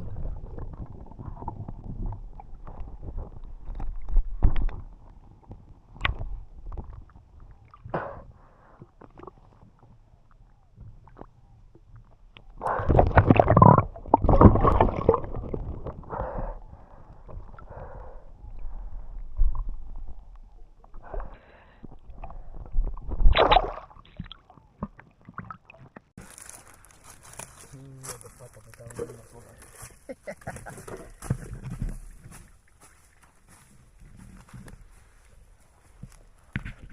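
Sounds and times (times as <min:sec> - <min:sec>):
underwater gurgling and bubbling: 0:00.0 - 0:08.4, 0:12.6 - 0:25.9.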